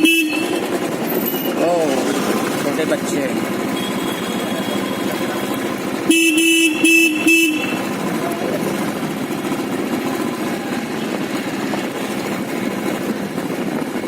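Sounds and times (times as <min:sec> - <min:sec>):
vehicle horn honks: 0:00.0 - 0:00.8, 0:03.7 - 0:08.0
motorcycle engine running: 0:00.0 - 0:14.0.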